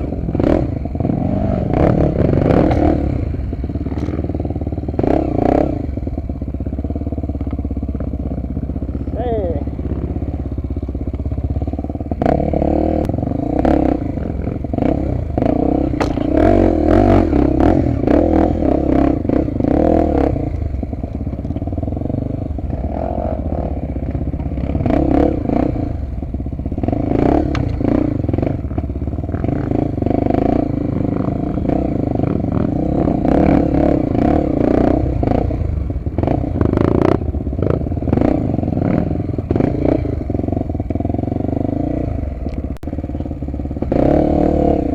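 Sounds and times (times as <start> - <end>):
motorcycle engine running: 0.0 - 44.9
motorcycle clattering over rough ground: 2.5 - 3.1, 3.7 - 4.6, 15.8 - 16.7, 20.5 - 22.0, 26.4 - 29.7.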